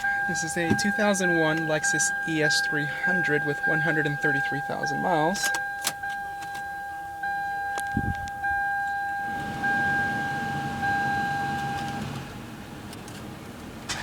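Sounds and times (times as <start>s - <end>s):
car warning chime: 0.0s - 12.8s
car engine starting and idling: 7.8s - 14.0s.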